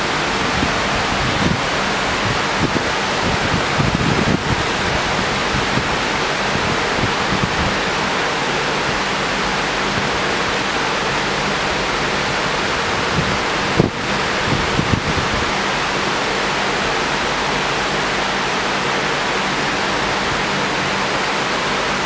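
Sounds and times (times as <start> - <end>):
rain falling in an even hiss: 0.0 - 22.0.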